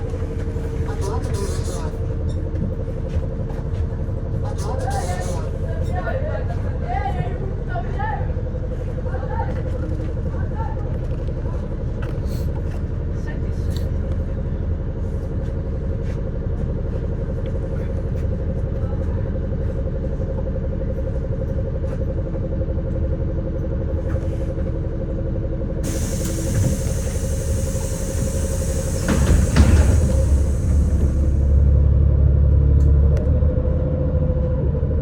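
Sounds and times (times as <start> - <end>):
bus engine and road rumble: 0.0 - 35.0.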